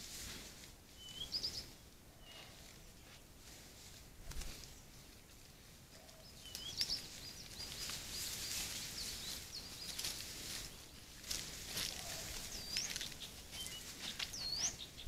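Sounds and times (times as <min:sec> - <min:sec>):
animals rustling through wet grass: 0:00.0 - 0:15.0
small birds chirping: 0:01.0 - 0:03.2, 0:05.9 - 0:15.0.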